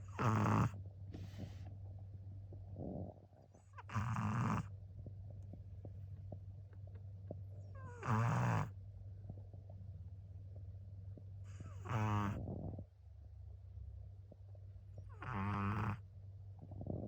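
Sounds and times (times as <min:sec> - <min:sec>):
dog snoring: 0:00.0 - 0:01.6, 0:02.6 - 0:04.7, 0:07.6 - 0:08.8, 0:11.4 - 0:12.9, 0:15.0 - 0:17.0
steady low hum: 0:00.0 - 0:17.0.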